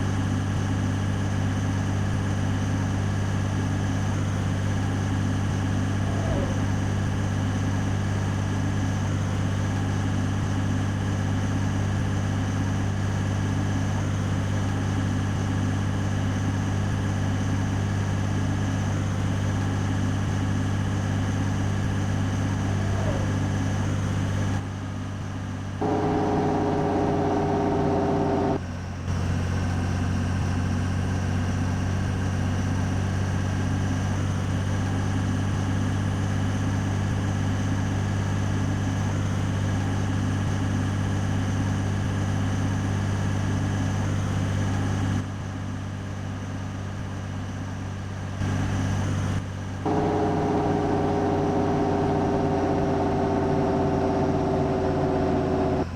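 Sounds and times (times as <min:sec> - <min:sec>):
diesel truck engine running: 0:00.1 - 0:24.7, 0:25.6 - 0:31.0, 0:48.4 - 0:55.9.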